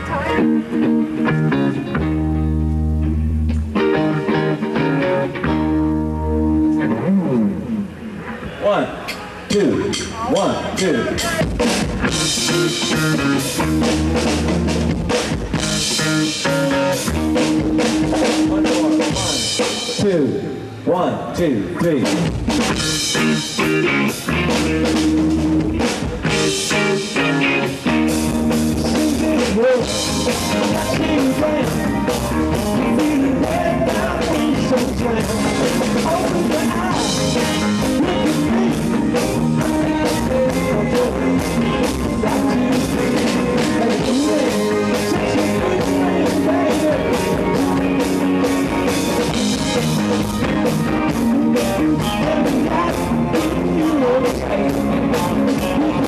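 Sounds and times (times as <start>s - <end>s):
rock band playing live: 0.0s - 20.9s, 21.6s - 56.0s
drum kit beat: 9.5s - 20.2s, 22.0s - 56.0s.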